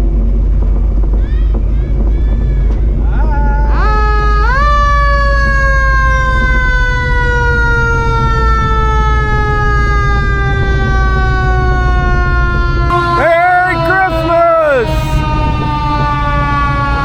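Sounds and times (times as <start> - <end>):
vehicle siren wailing: 3.4 - 17.0.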